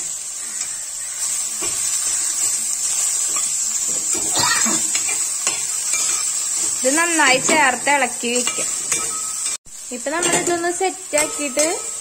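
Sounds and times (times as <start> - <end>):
okra sizzling in hot oil: 0.0 - 12.0
steel ladle scraping pot: 1.6 - 9.6.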